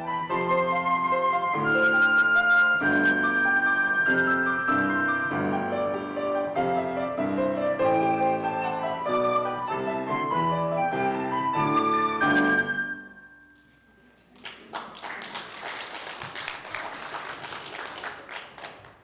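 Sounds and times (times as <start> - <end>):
instrumental music: 0.0 - 14.3
congregation applauding: 14.3 - 19.0.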